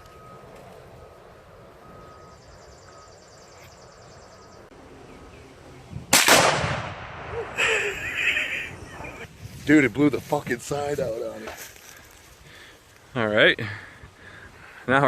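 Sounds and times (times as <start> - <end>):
faint beeping: 0.0 - 5.8
loud explosion with echo: 6.1 - 7.6.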